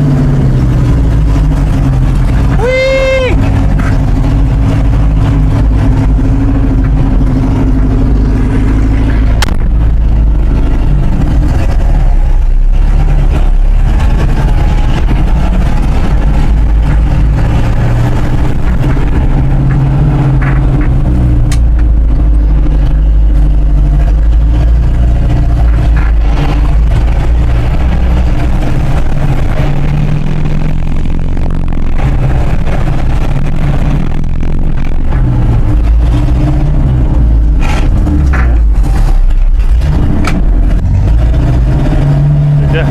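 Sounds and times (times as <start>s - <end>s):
truck engine running loudly: 0.0s - 42.9s.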